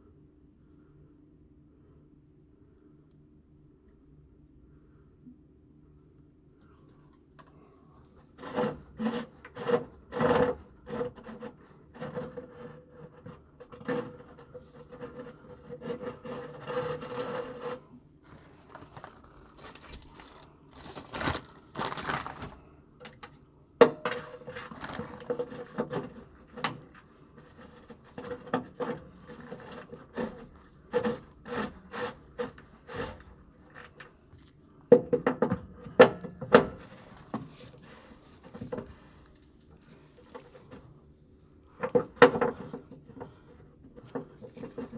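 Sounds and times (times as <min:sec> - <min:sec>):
scraping and rubbing: 0:08.2 - 0:22.7, 0:24.1 - 0:34.6, 0:39.8 - 0:44.9.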